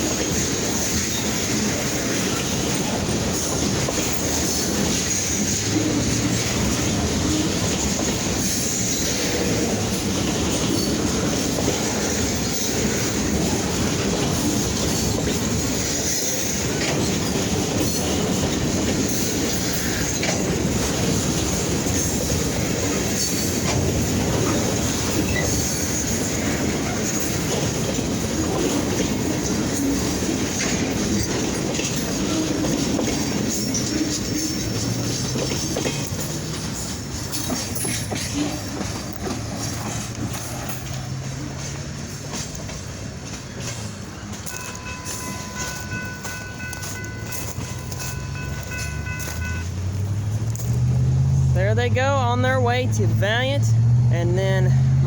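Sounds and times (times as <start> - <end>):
train wheels rumbling on rails: 0.0 - 55.0
high wheel squeal: 44.4 - 50.7.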